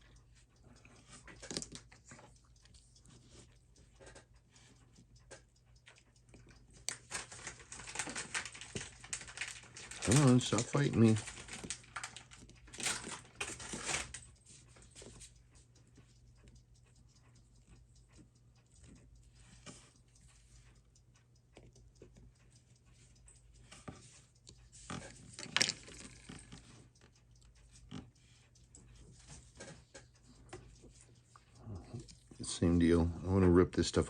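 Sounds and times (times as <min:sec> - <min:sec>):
low electrical hum: 0:00.0 - 0:34.0
clicks and scrapes of small tools: 0:24.8 - 0:26.7.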